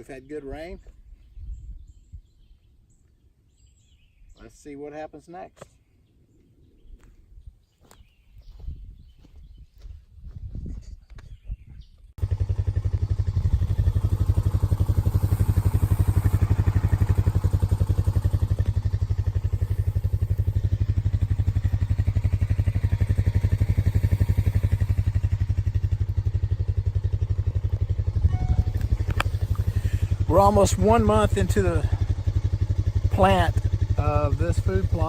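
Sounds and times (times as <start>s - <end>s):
engine idling: 12.2s - 35.0s.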